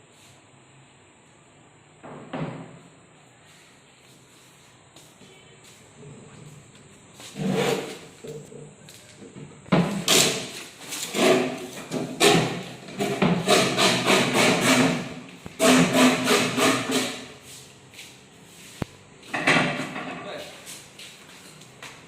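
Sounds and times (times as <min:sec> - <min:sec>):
hand tool scraping and knocking: 0:07.2 - 0:08.5, 0:09.8 - 0:17.3.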